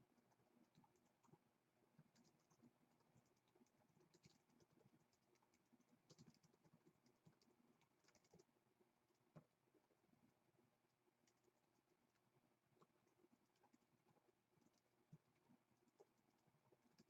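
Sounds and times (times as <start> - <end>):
typing on computer keyboard: 3.2 - 8.5.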